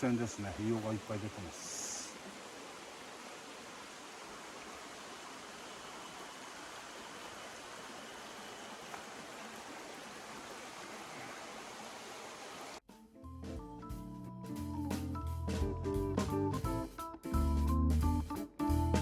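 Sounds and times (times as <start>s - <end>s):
flowing water rushing: 0.0s - 12.8s.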